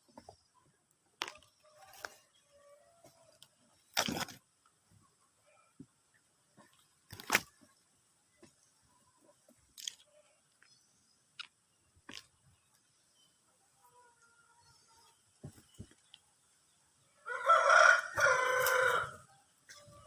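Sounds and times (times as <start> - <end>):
leaves and twigs rustling: 1.2 - 2.4, 6.6 - 7.8, 17.4 - 20.0.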